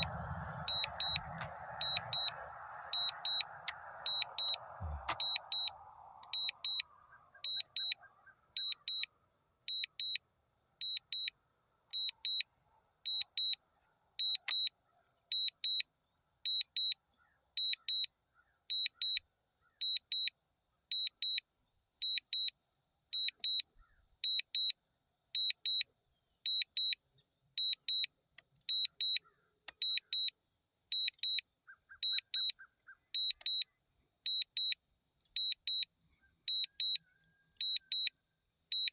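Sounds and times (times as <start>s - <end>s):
high-pitched electronic beeping: 0.0s - 8.0s.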